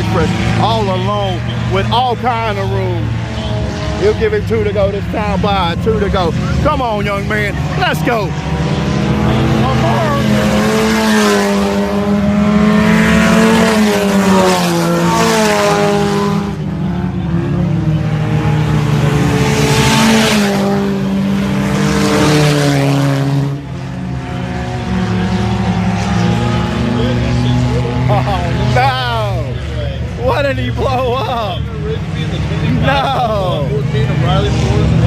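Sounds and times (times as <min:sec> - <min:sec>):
race car engines passing: 0:00.0 - 0:35.0.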